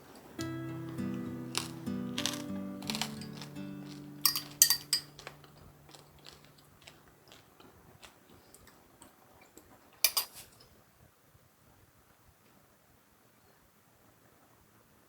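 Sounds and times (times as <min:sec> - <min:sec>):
background music: 0:00.4 - 0:06.4
small objects clicking and clattering: 0:01.5 - 0:07.4.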